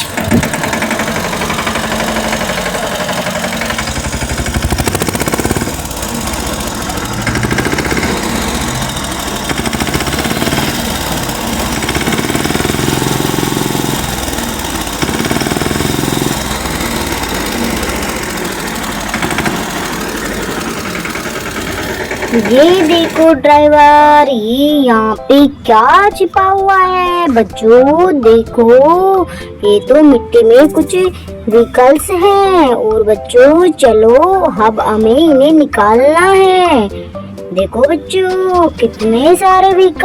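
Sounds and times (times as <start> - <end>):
toy tractor rattling buzz: 0.0 - 24.3.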